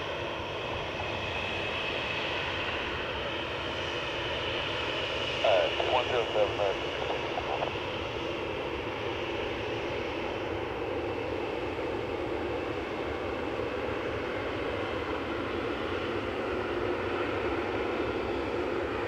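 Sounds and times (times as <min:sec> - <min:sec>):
jet engines rumbling: 0:00.4 - 0:19.0
faint high whine: 0:05.4 - 0:07.9.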